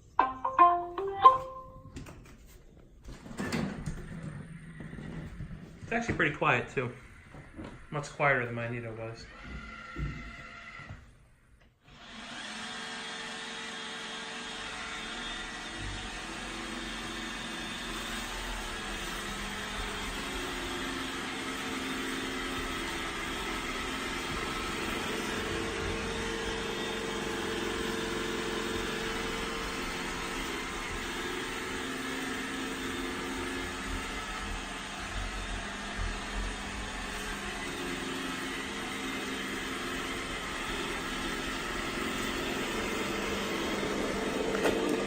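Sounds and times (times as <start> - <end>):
robot vacuum whirring: 11.9 - 45.0.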